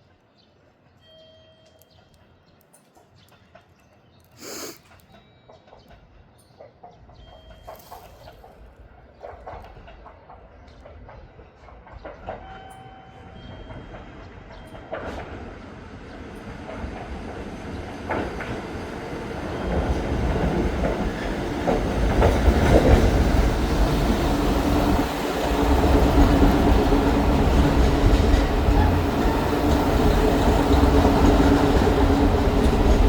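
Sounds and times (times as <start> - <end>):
train wheels clacking over rail joints: 19.6 - 33.0.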